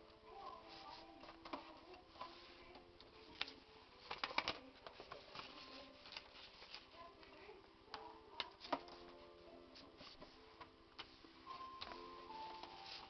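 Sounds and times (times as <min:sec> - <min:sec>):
faint background music: 0:00.0 - 0:13.0
paper being folded and creased: 0:00.5 - 0:07.4, 0:11.0 - 0:13.0.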